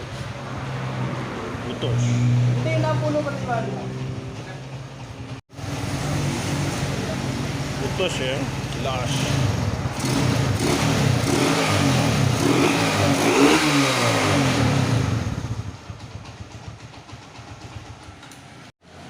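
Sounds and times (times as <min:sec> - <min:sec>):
motorcycle engine revving: 0:00.2 - 0:18.7.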